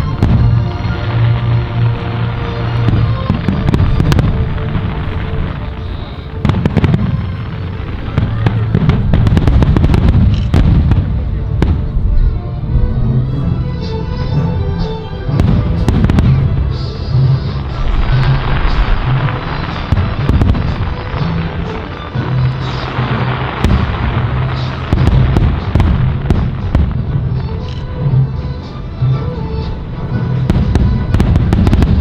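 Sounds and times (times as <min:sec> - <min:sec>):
dense crackling: 0:00.0 - 0:12.0, 0:15.4 - 0:28.0
fireworks cracking: 0:00.0 - 0:12.0, 0:15.3 - 0:28.8, 0:30.4 - 0:32.0
fireworks booming: 0:00.0 - 0:12.3, 0:15.3 - 0:32.0
music playing: 0:00.0 - 0:32.0.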